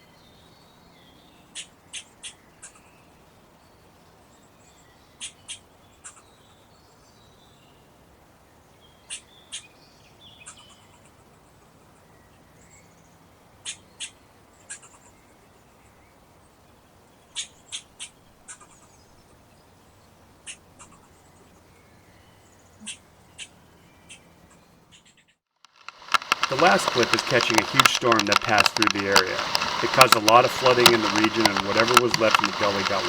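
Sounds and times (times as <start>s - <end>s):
bird chip calls: 24.9s - 33.0s
soft twittering: 25.8s - 33.0s
steady hiss: 25.8s - 33.0s.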